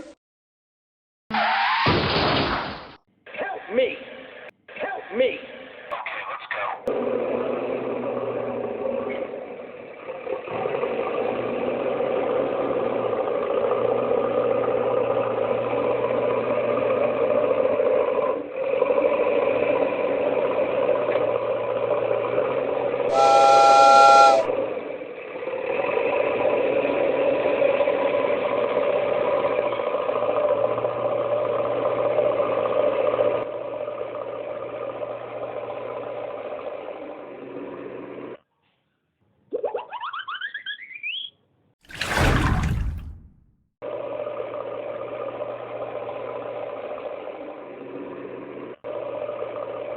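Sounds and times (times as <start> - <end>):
cartoon steam train running: 17.2 - 32.9
train whistle blast: 23.1 - 24.8.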